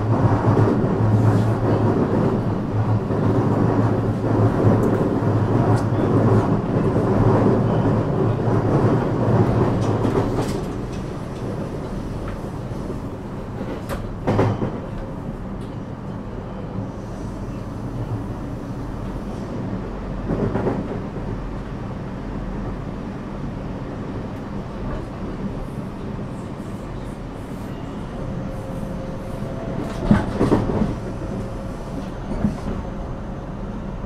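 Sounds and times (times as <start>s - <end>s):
train wheels rumbling on rails: 0.0s - 34.0s
rail-joint clicks: 3.9s - 8.0s, 8.6s - 16.2s, 28.6s - 32.9s.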